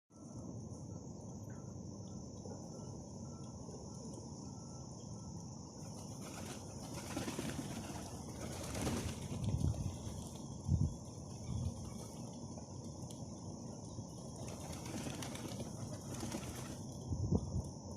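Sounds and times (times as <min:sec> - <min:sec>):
bird wings flapping: 0:05.9 - 0:10.6, 0:14.3 - 0:17.0.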